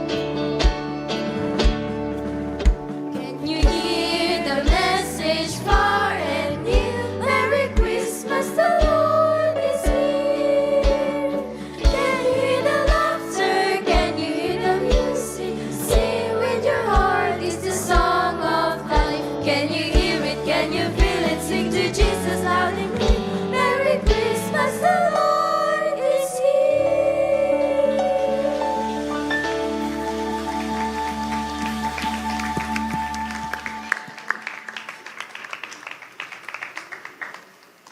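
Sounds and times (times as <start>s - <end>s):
instrumental accompaniment: 0.0s - 35.1s
children's choir singing: 3.2s - 34.7s
low drum beat: 20.0s - 23.3s.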